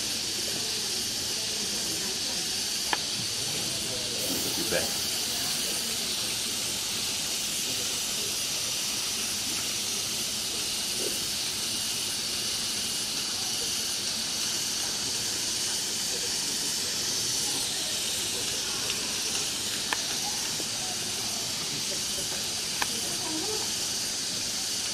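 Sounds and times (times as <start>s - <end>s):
skewers sizzling on a grill: 0.0s - 24.9s.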